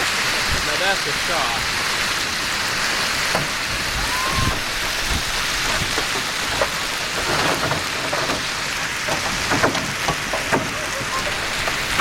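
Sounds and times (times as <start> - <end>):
heavy rain on a car: 0.0 - 12.0
hailstones knocking on car: 4.6 - 12.0.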